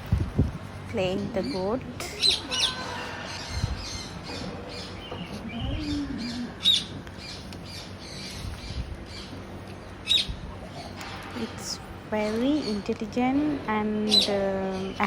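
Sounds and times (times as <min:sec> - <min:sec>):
macaw squawking: 0:01.6 - 0:08.3.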